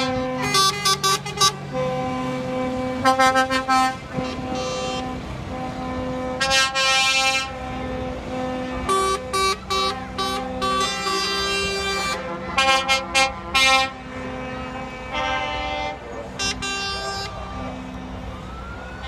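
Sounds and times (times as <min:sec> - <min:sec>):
vehicle horns blasting: 0:00.0 - 0:18.1.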